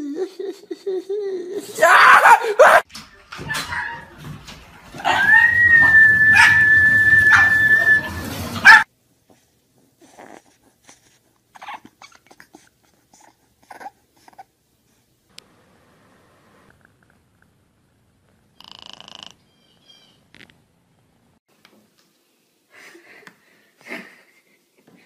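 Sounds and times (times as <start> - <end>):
dog howl-like whine: 5.0 - 8.8
puppy whimpering: 11.6 - 12.6.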